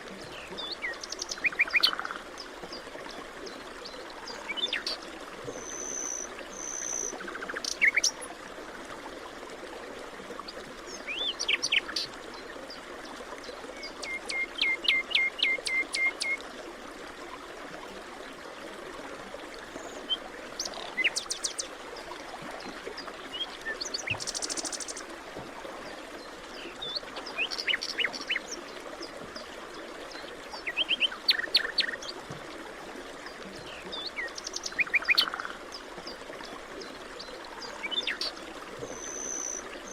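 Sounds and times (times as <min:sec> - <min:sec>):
forest birds singing: 0:00.2 - 0:02.8, 0:05.6 - 0:08.3, 0:26.5 - 0:28.8, 0:30.6 - 0:32.2, 0:33.6 - 0:36.2, 0:36.8 - 0:39.9.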